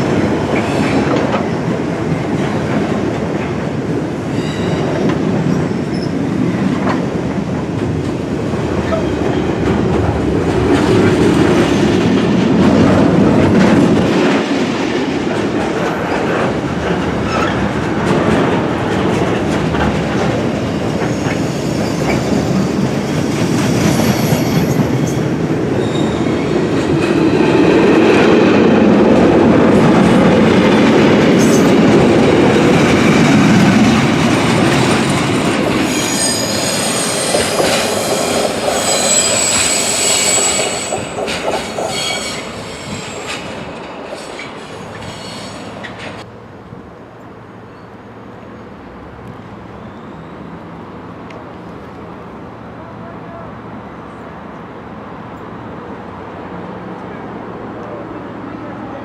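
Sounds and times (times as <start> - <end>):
train wheels rumbling on rail: 0.0 - 59.0
high-pitched wheel squeal: 25.8 - 26.4, 35.8 - 43.5, 44.2 - 45.8.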